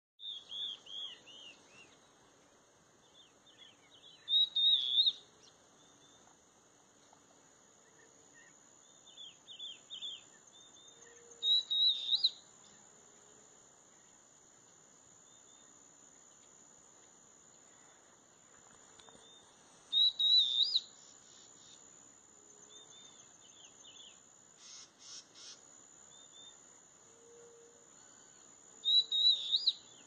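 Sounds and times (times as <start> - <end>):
birds singing: 0.2 - 2.2, 3.0 - 6.3, 7.8 - 12.4, 19.0 - 21.8, 28.0 - 30.0.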